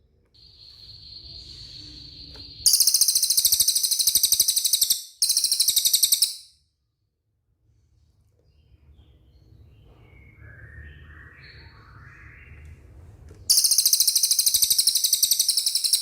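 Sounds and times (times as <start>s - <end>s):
songbird whistle and trills: 0.4s - 6.5s, 13.5s - 16.0s.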